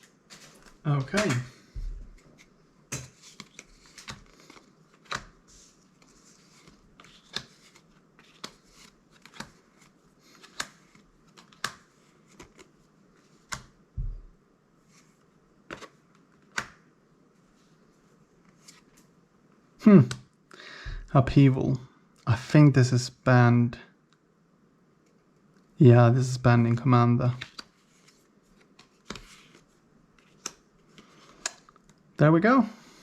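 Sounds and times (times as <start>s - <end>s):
cards sliding and rustling: 0.0s - 13.7s, 14.8s - 16.7s, 27.4s - 31.7s.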